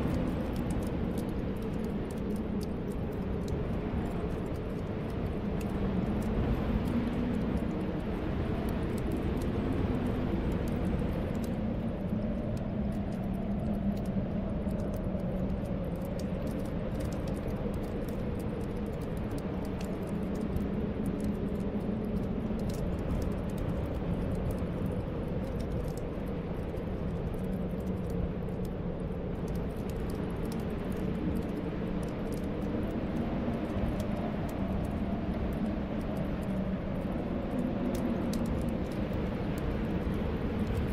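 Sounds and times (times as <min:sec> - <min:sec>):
wind blowing with low whistle: 0:00.0 - 0:40.9.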